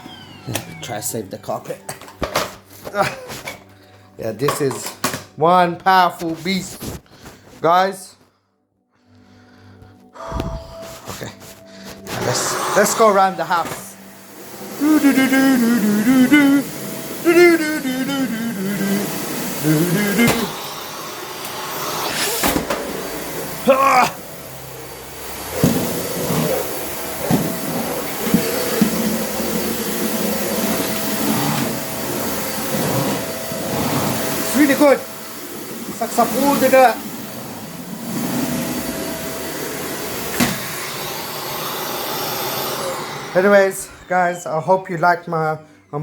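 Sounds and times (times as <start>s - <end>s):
vacuum cleaner running: 0.0s - 3.1s, 10.2s - 44.7s
vacuum knocking: 14.6s - 20.8s, 25.2s - 34.6s
person exclaiming: 14.8s - 20.7s, 23.6s - 24.2s.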